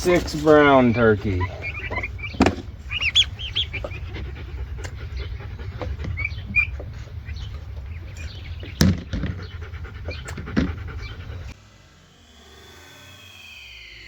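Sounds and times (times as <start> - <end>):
rustling and handling noise: 0.0 - 9.4
turkey poults peeping: 0.0 - 11.6
steady low rumble: 0.0 - 12.0
sharp knocks: 1.8 - 2.8, 8.6 - 11.0.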